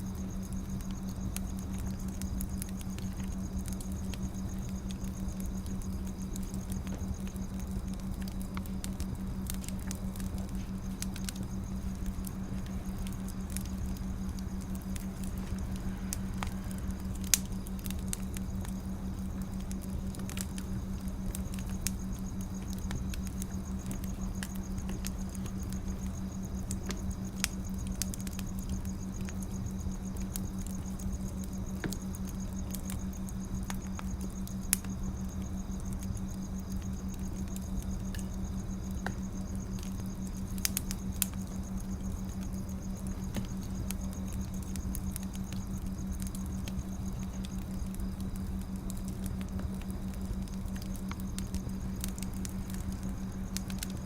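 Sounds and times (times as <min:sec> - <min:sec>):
steady low hum: 0:00.0 - 0:54.0
wood fire crackling: 0:00.0 - 0:54.0
sharp pops of fire: 0:00.2 - 0:38.3.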